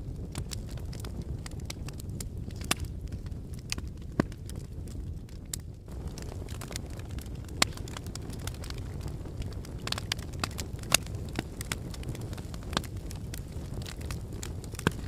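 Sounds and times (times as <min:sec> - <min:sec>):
sharp cracks and crackles: 0:00.0 - 0:15.0
volcano rumbling: 0:05.8 - 0:15.0.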